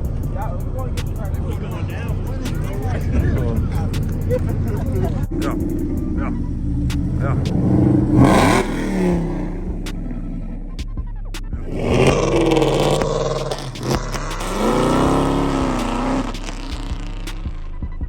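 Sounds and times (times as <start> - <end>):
car engine revving: 0.0 - 18.0
sharp clicks: 1.0 - 1.6, 10.8 - 17.5.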